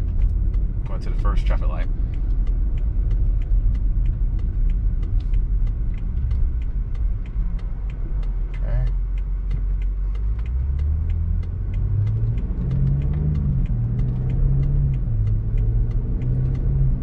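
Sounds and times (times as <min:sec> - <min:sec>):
car engine pulling away: 0:00.0 - 0:17.0
steady light ticking: 0:00.0 - 0:17.0.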